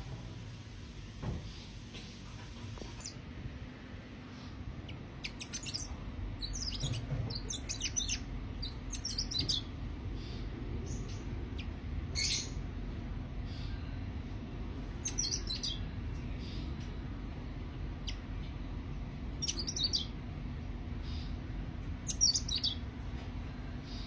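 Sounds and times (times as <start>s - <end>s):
low background rumble: 0.0s - 24.0s
bird chirping sharp high notes: 5.2s - 9.7s.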